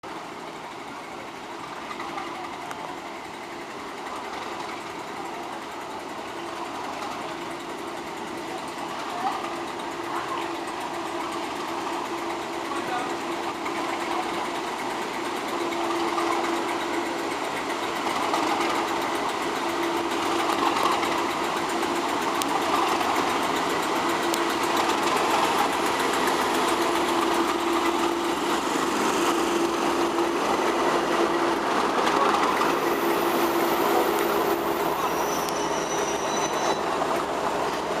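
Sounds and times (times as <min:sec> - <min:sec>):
diesel locomotive engine drone: 0:00.0 - 0:38.0
high-pitched squeals: 0:32.6 - 0:37.2.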